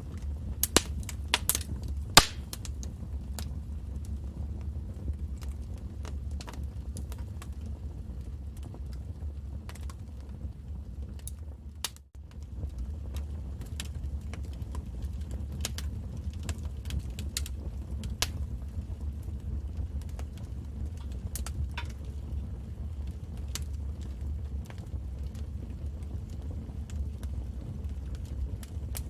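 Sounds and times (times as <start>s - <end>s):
low rumble of flames: 0.0s - 29.0s
wood fire popping and snapping: 0.0s - 29.0s.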